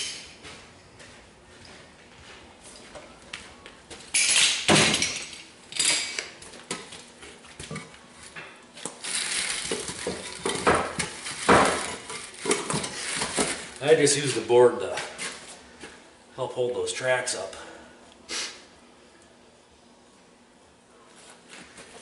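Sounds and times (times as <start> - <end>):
tools clattering and scraping: 4.0 - 14.4.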